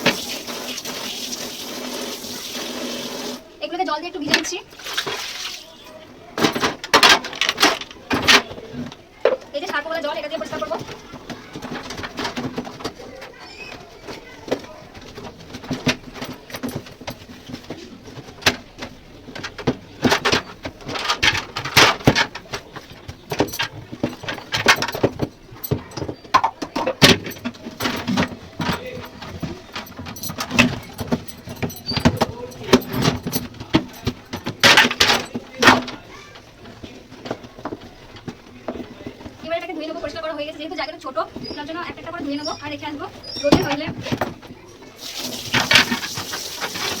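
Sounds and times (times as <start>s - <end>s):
scrubbing in soapy water: 4.7s - 5.8s
clattering knocks: 6.4s - 44.7s.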